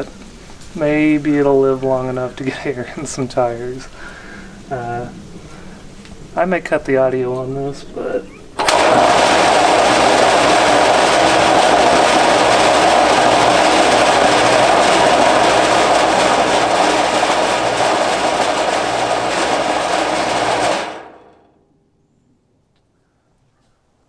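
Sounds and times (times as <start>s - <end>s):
air compressor rattling loudly: 8.6s - 21.5s.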